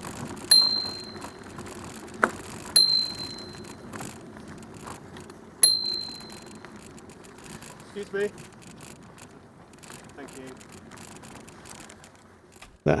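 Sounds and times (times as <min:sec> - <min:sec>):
bicycle bell ringing: 0:00.4 - 0:04.2, 0:05.6 - 0:07.6.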